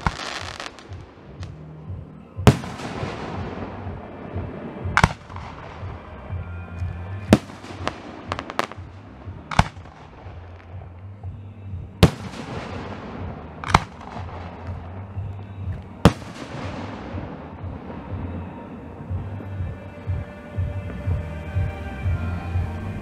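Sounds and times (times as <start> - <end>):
small firework cracks: 0.0 - 1.7, 2.4 - 6.2, 6.8 - 11.1, 12.0 - 18.7
fireworks bursting: 0.0 - 23.0.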